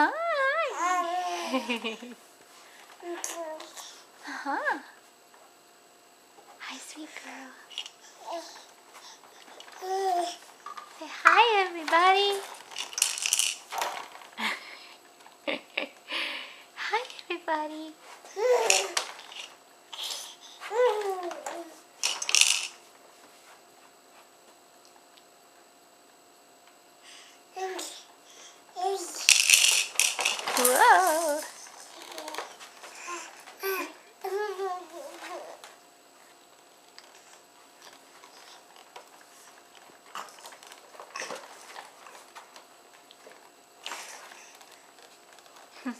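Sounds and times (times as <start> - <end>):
baby babbling: 0.6 - 1.4.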